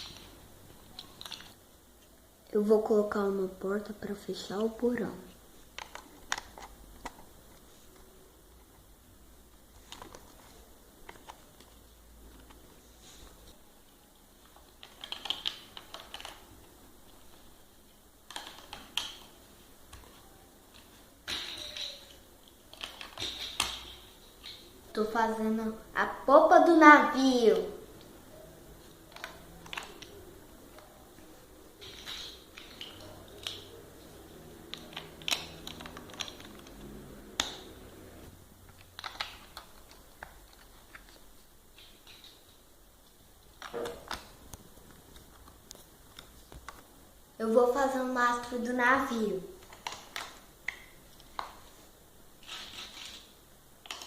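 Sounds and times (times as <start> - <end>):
plastic toy blocks clicking: 0.9 - 1.6, 5.7 - 7.2, 14.5 - 16.4, 18.2 - 20.1, 20.7 - 24.6, 29.1 - 30.2, 31.8 - 33.7, 34.7 - 37.7, 38.7 - 42.6, 49.6 - 51.6, 52.4 - 54.0.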